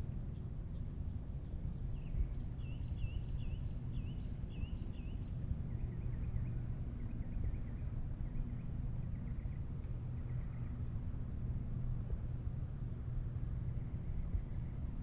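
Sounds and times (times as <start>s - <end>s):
low rumble: 0.0s - 15.0s
songbird singing: 0.0s - 15.0s.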